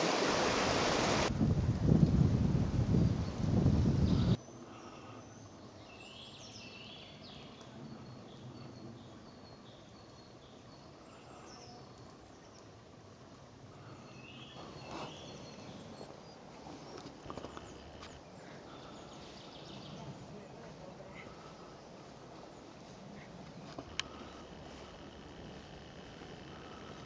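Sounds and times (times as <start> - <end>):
small birds chirping: 2.9 - 27.0
light crackles: 10.0 - 27.0.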